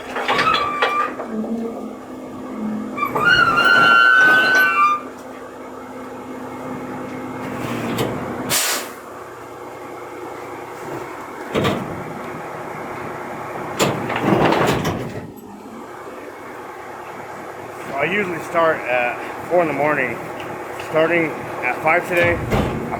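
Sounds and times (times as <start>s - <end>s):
rattling clatter: 0.0s - 1.9s, 13.8s - 15.5s, 22.1s - 22.9s
brakes squealing: 0.0s - 5.4s, 17.1s - 22.9s
air hiss: 8.5s - 9.0s.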